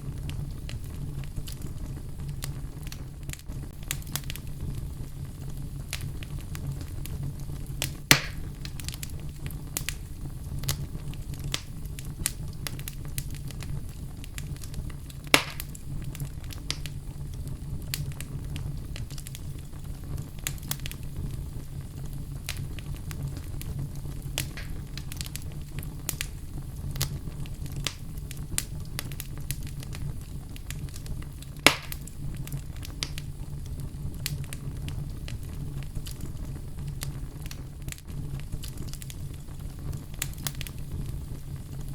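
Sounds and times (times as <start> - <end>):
low rumble of flames: 0.0 - 41.9
wood crackling and popping: 0.0 - 41.9.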